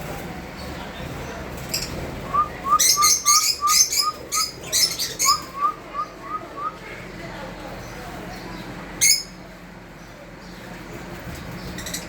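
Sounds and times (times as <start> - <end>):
lovebirds chirping: 0.6 - 6.8.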